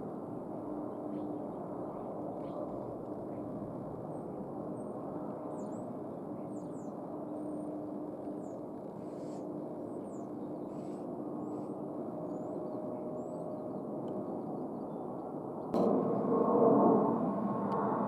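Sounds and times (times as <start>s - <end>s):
distant jet engine rumble: 0.0s - 18.0s
small birds chirping: 4.1s - 13.8s.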